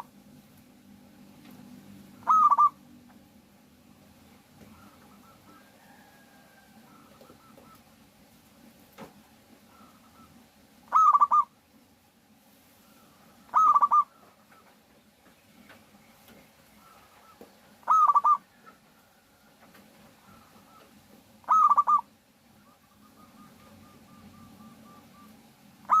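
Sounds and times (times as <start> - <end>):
dove cooing: 2.1 - 3.0, 4.6 - 8.1, 9.6 - 11.6, 12.8 - 14.8, 16.7 - 26.0.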